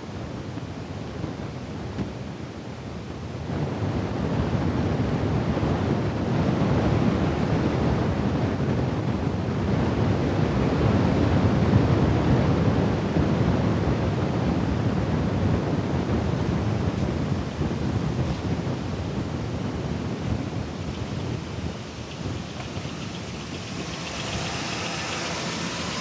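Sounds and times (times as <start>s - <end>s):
engine running with a knock: 2.0s - 2.2s, 16.2s - 26.0s.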